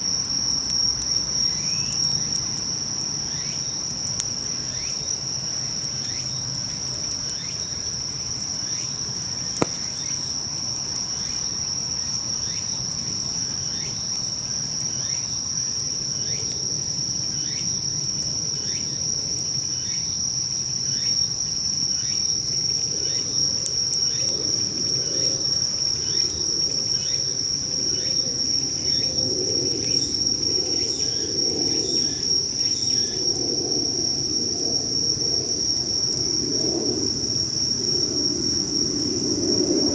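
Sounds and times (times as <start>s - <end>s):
insects chirring: 0.0s - 39.9s
sharp pop: 9.5s - 10.2s.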